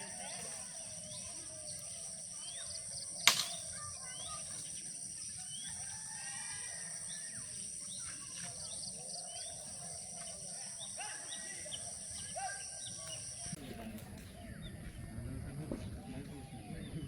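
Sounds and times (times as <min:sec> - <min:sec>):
high-pitched insect drone: 0:00.0 - 0:13.6
birds chirping: 0:00.0 - 0:17.0
sharp click: 0:03.2 - 0:03.7.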